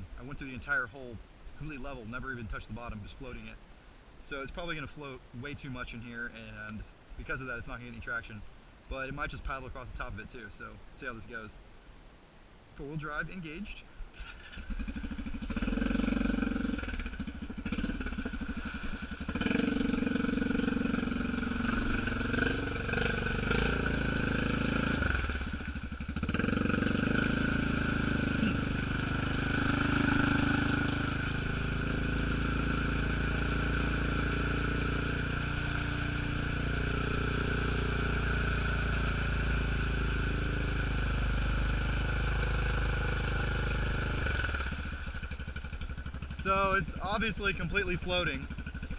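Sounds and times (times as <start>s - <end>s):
atv engine revving: 14.1s - 48.9s.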